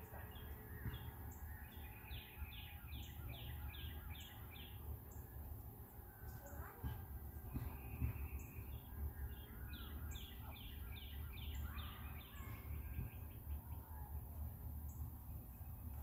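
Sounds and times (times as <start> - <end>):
faint bird calls: 0.0 - 16.0.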